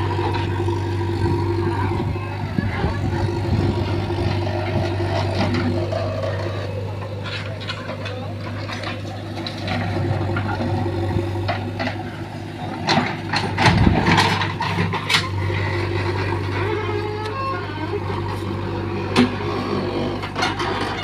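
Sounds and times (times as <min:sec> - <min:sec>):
diesel engine running: 0:00.0 - 0:21.0
knocks and clatter: 0:12.7 - 0:15.5.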